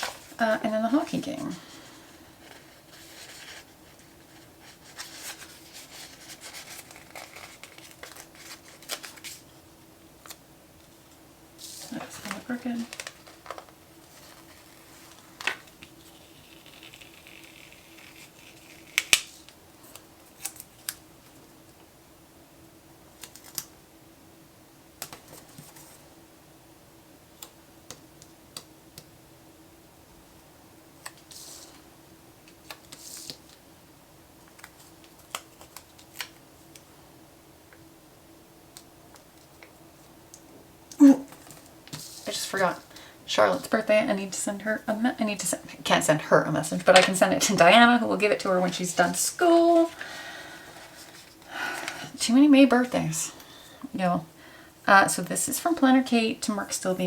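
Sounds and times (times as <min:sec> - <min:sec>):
paper rustling and crinkling: 0:00.0 - 0:00.4, 0:01.6 - 0:09.6, 0:11.6 - 0:21.5, 0:32.5 - 0:33.6, 0:34.4 - 0:36.9, 0:41.3 - 0:42.8, 0:46.7 - 0:52.0
faint steady hum: 0:00.0 - 0:57.0.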